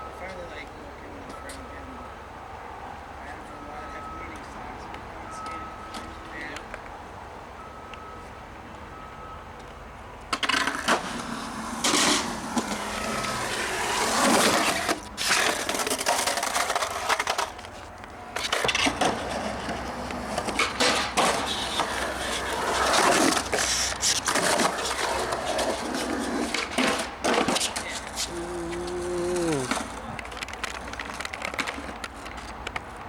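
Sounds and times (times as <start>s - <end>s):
skateboard clacking: 10.3s - 17.7s, 18.4s - 33.0s
skateboard wheels rolling: 10.3s - 33.0s.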